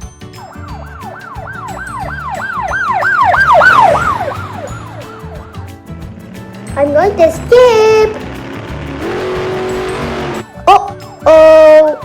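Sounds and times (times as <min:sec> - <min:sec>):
background music: 0:00.0 - 0:12.0
police siren wailing: 0:00.4 - 0:05.8.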